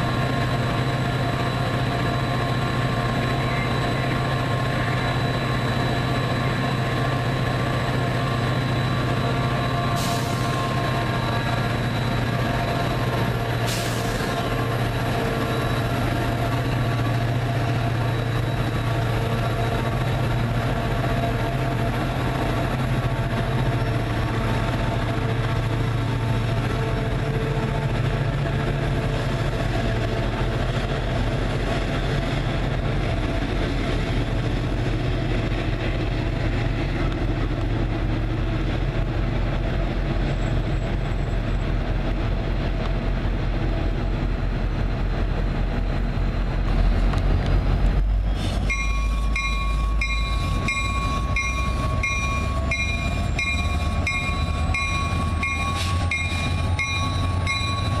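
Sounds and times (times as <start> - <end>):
train engine humming: 0.0 - 58.0
steady tones: 48.6 - 58.0.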